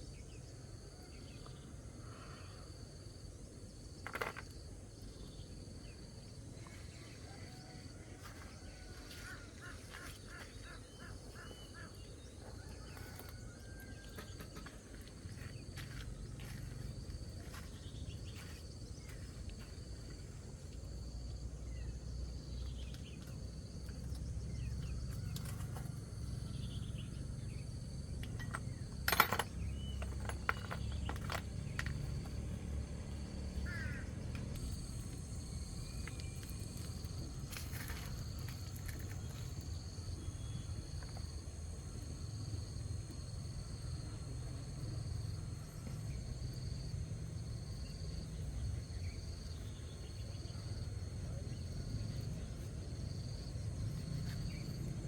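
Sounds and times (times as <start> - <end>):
insect drone: 0.0 - 55.0
bird calls: 6.6 - 14.7, 33.6 - 34.9.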